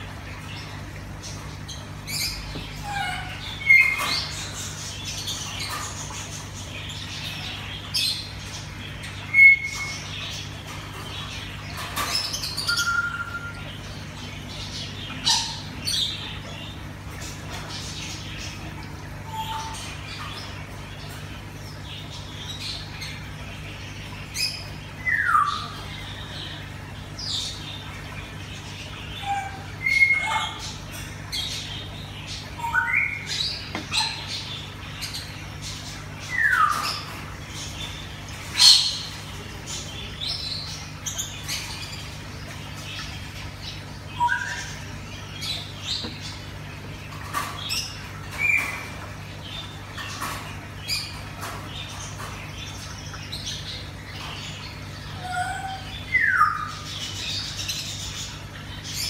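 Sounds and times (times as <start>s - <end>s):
birds squawking and chirping: 0.0s - 59.0s.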